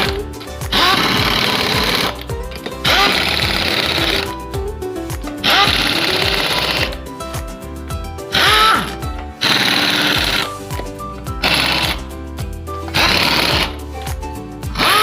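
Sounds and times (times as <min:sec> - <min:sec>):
pneumatic impact wrench hammering: 0:00.0 - 0:04.4, 0:05.4 - 0:07.0, 0:08.4 - 0:10.6, 0:11.4 - 0:12.0, 0:12.9 - 0:13.8, 0:14.7 - 0:15.0
background music with bass beat: 0:00.0 - 0:15.0.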